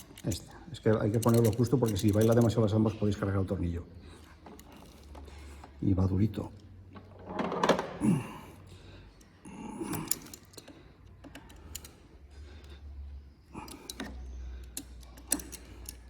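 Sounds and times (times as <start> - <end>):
screwdriver clicks and scrapes: 13.6 - 16.0.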